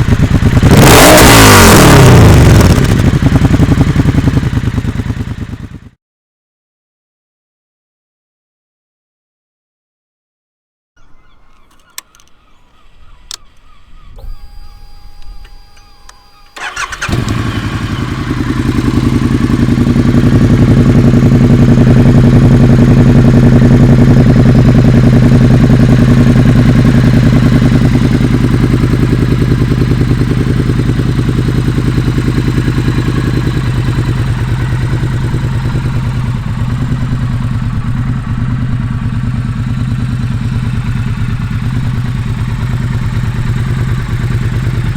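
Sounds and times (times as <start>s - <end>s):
motorcycle engine idling: 0.0s - 5.9s, 11.0s - 44.9s
starter clicks and whine: 11.0s - 18.8s.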